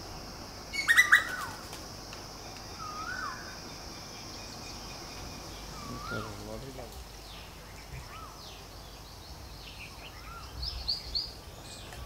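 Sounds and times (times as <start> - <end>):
steady high-pitched hiss: 0.0 - 12.0
loud sharp bird call: 0.8 - 1.6.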